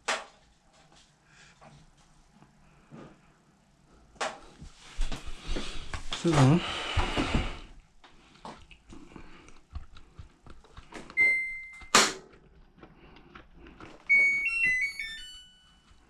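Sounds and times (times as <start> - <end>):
electronic beep: 11.2 - 12.0, 14.1 - 15.8
electronic tone jingle: 14.1 - 15.9.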